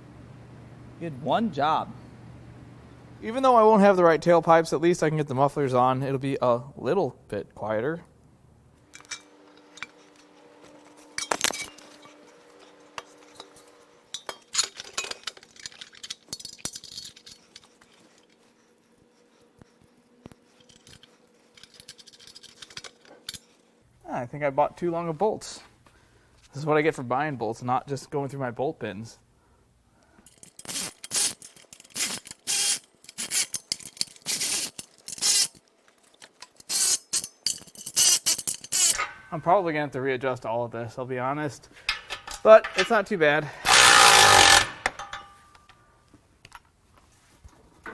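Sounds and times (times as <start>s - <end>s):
faint steady hum: 0.0s - 47.9s
metal parts and tools clanking: 8.8s - 18.7s, 20.4s - 23.6s, 30.3s - 39.4s, 41.8s - 43.0s, 43.6s - 45.8s
rattling clicks: 30.3s - 39.1s.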